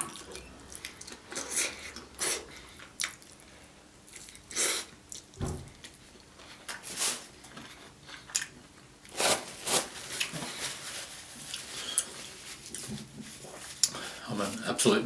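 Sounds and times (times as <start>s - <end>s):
paper tissue rustling: 9.1s - 14.7s.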